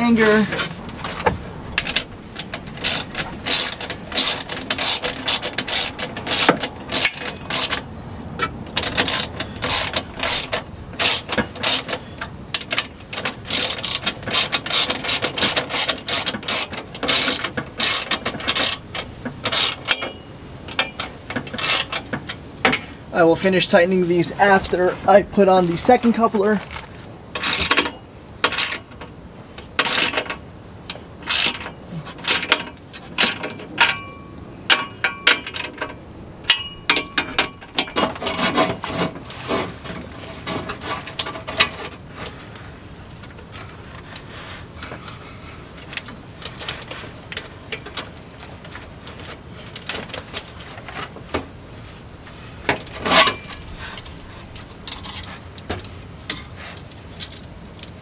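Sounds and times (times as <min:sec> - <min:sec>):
hand tools clicking: 0:01.8 - 0:07.8, 0:08.8 - 0:22.8, 0:30.9 - 0:39.1.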